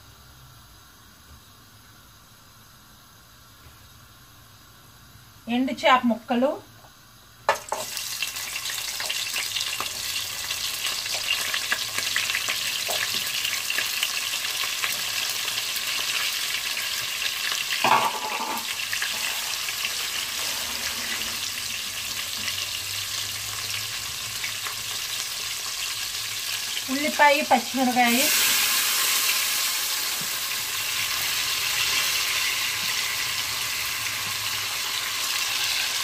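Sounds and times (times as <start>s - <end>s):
fish frying in hot oil: 7.2s - 36.0s.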